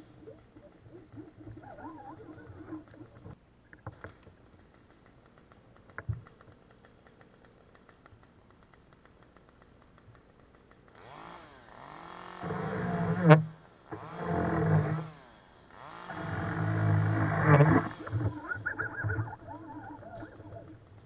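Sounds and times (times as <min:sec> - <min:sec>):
faint clicks: 0:00.0 - 0:11.0, 0:16.2 - 0:21.0
chainsaw running: 0:04.3 - 0:18.4.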